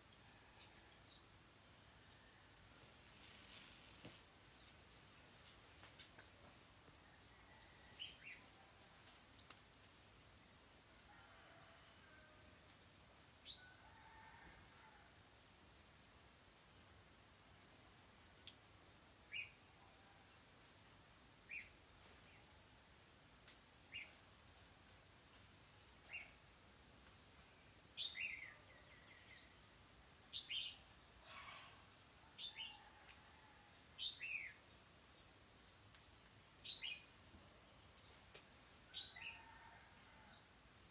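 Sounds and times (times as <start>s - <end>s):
insect chirping in rapid pulses: 0.0s - 11.5s.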